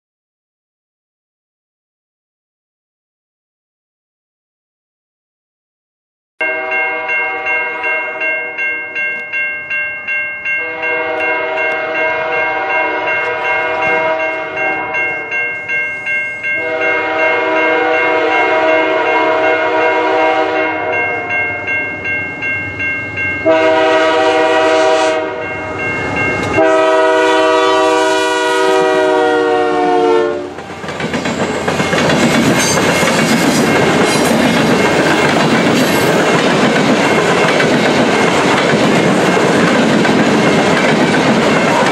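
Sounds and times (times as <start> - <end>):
locomotive horn blasts: 6.4 - 8.6, 10.6 - 15.4, 16.6 - 21.3, 23.4 - 25.6, 26.5 - 30.8
level-crossing bell dinging: 6.4 - 18.8, 20.6 - 23.9, 25.3 - 26.8, 30.6 - 41.9
train rumbling: 6.4 - 41.9
wheel clickety-clack: 30.6 - 41.9.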